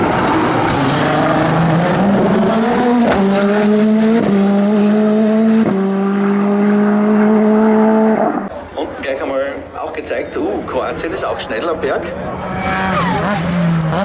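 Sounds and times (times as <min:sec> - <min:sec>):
race car accelerating with upshifts: 0:00.0 - 0:08.5, 0:12.0 - 0:14.0.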